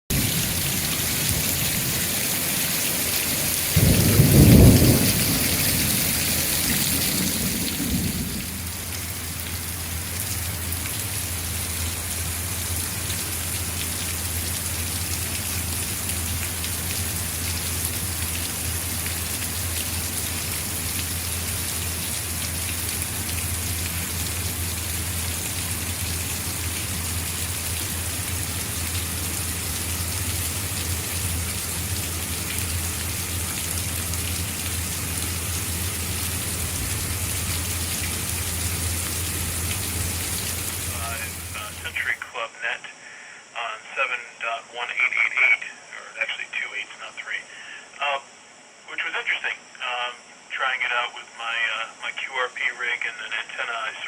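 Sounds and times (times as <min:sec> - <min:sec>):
thunder clap and rumble: 0:00.1 - 0:10.8, 0:24.6 - 0:41.8
rain falling: 0:00.1 - 0:42.3.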